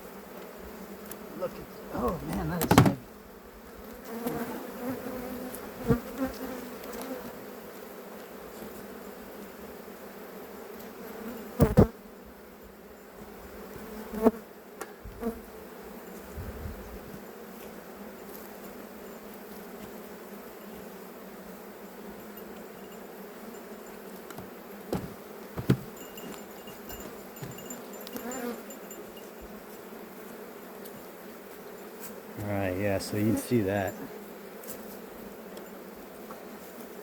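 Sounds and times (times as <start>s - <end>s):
bees buzzing: 0.0s - 37.0s
knocks on beehive: 2.0s - 3.0s, 24.3s - 26.0s.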